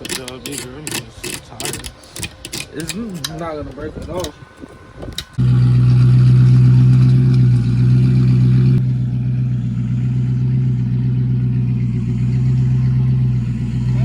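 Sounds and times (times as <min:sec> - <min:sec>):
car engine running steadily: 0:05.3 - 0:14.0.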